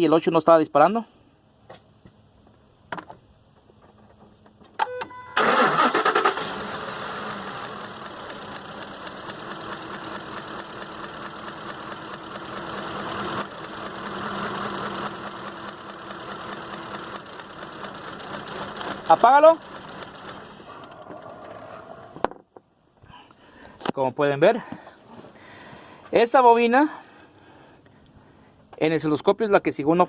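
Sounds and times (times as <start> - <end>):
starter clicks: 5.4 - 21.0
engine cranking and idling: 5.4 - 22.2.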